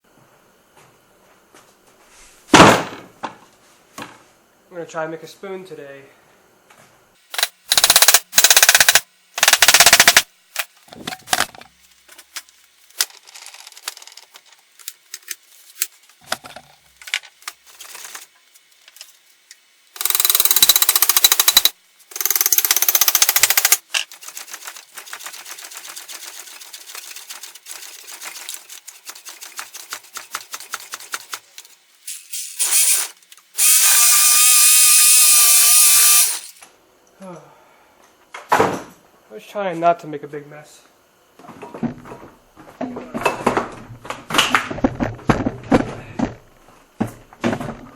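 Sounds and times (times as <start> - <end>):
rapid clicking: 7.4 - 10.7, 20.0 - 31.8
power tool cutting wood: 32.5 - 36.6.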